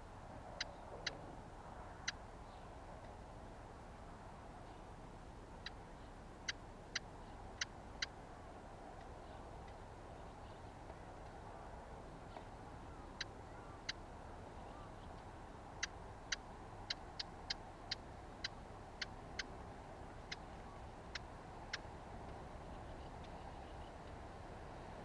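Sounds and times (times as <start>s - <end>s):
songbird tick calls: 12.3s - 24.2s.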